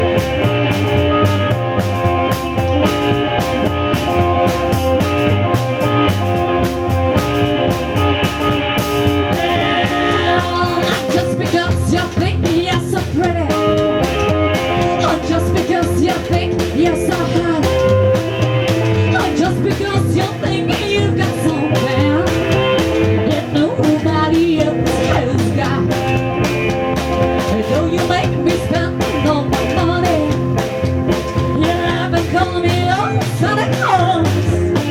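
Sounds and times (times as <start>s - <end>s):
rock band playing: 0.0s - 34.9s
person singing: 9.2s - 18.2s, 18.8s - 26.1s, 27.5s - 30.5s, 31.3s - 34.9s.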